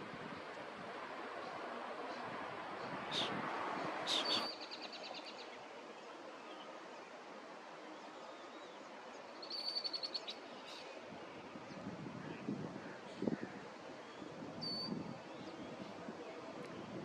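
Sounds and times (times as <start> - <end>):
steady outdoor noise: 0.0 - 17.0
songbird trilling: 4.1 - 5.3, 9.4 - 10.8, 14.6 - 15.0.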